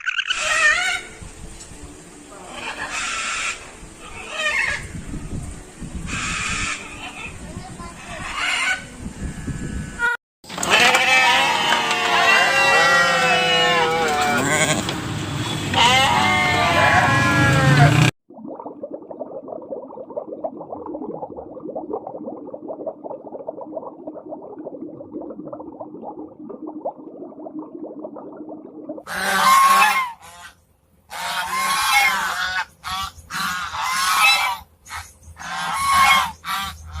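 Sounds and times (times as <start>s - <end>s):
waterfowl calling: 0.0s - 1.1s, 2.3s - 4.9s, 8.0s - 8.9s, 10.0s - 14.9s, 15.5s - 18.1s, 29.1s - 37.0s.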